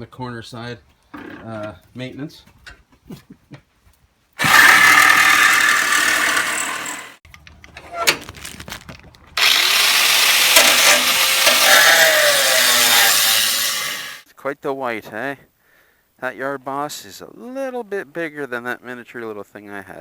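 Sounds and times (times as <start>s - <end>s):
handheld power tool running: 4.4s - 7.2s, 9.4s - 14.2s.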